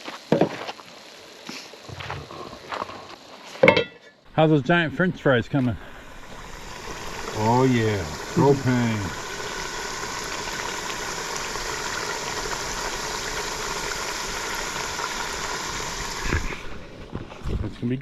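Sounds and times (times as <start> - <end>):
fries sizzling in hot oil: 0.0 - 3.6, 4.3 - 18.0
oil popping: 4.3 - 17.6.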